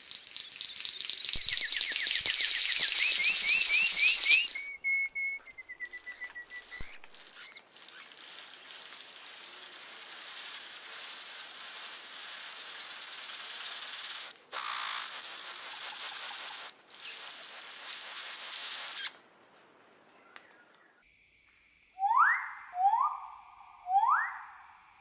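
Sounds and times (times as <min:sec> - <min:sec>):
high background hiss: 0:00.0 - 0:25.0
bird chirping: 0:00.1 - 0:08.9
bird whistle dropping in pitch: 0:22.0 - 0:24.7.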